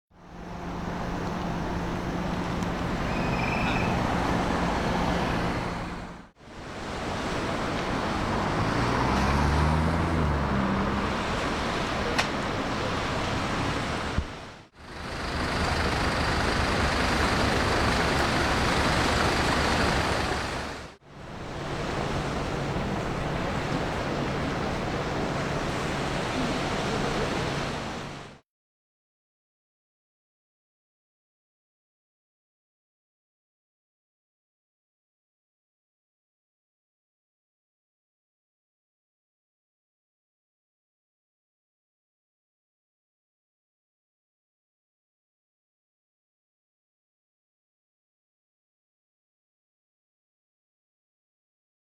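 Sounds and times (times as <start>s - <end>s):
engine noise: 0.1s - 28.2s.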